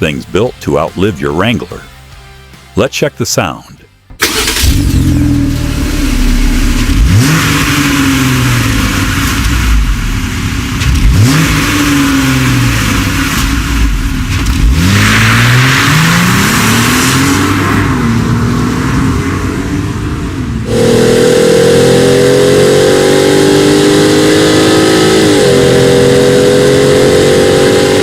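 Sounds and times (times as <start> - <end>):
car engine revving: 4.2 - 28.0.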